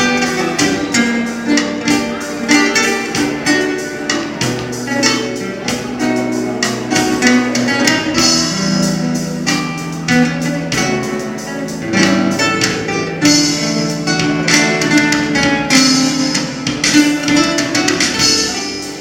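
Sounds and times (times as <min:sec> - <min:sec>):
acoustic guitar plucking: 0:00.0 - 0:19.0.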